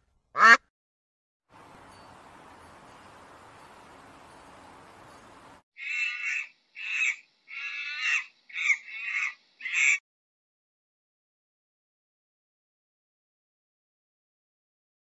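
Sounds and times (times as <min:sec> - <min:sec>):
loud animal calls: 0:05.8 - 0:10.0.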